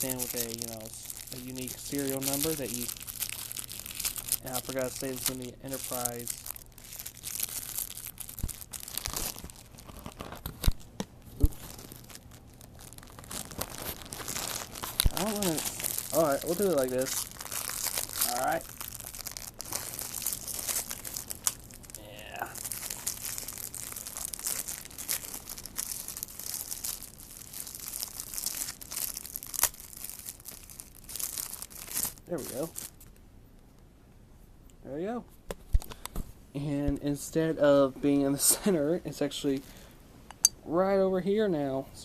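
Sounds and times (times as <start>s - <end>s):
plastic packaging crinkling: 0.0s - 33.2s
plastic rustling: 0.0s - 33.2s.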